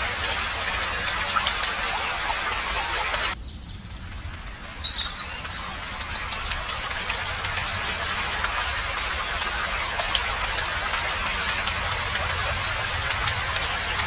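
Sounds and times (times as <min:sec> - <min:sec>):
rain hiss: 0:00.0 - 0:14.0.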